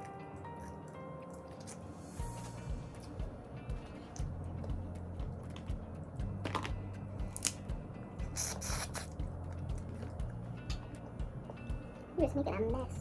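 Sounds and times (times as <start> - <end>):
music with steady bass beat: 2.2 - 13.0
crab shell cracking: 7.4 - 7.6.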